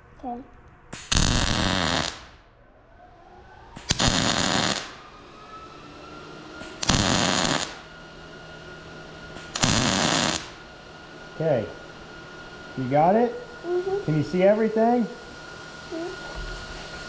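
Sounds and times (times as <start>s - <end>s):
welding arc crackling: 0.9s - 2.4s, 3.8s - 5.1s, 6.6s - 7.9s, 9.3s - 10.7s.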